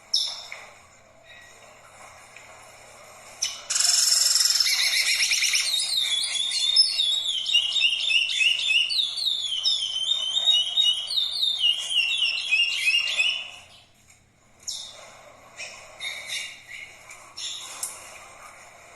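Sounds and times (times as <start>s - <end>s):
songbird whistling: 3.4s - 13.7s.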